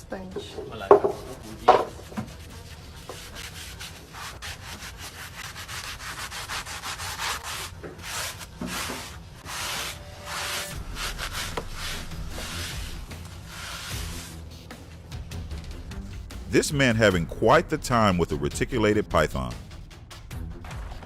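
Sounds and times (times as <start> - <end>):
rough scraping strokes: 3.2 - 14.8.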